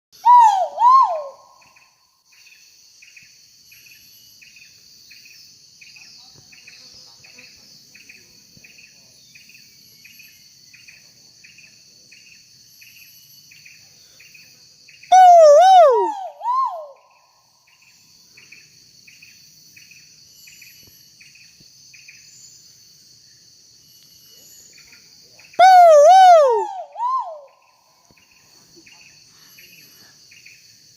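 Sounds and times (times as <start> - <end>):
insects droning: 0.2 - 30.9
regular chirping: 15.1 - 17.0, 25.6 - 27.5.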